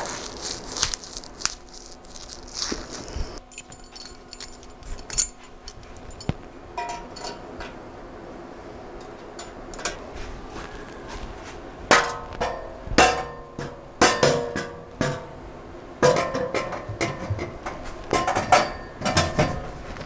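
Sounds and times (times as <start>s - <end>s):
metal pipes clanging together: 3.4s - 7.8s, 9.0s - 11.2s, 11.9s - 20.0s.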